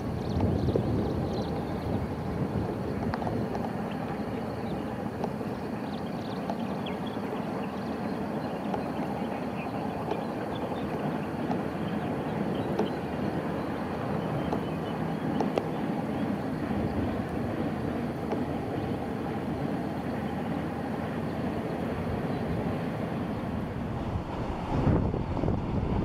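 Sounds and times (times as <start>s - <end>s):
distant train rumbling on rails: 0.0s - 26.0s
faint clicks: 15.4s - 15.8s.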